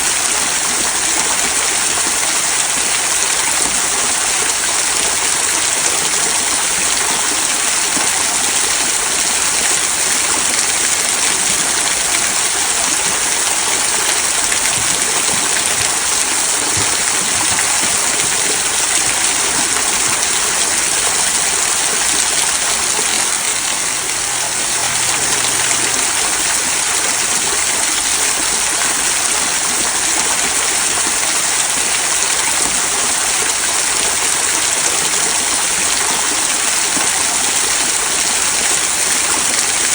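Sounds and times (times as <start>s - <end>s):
small waterfall splashing over stones: 0.0s - 39.9s.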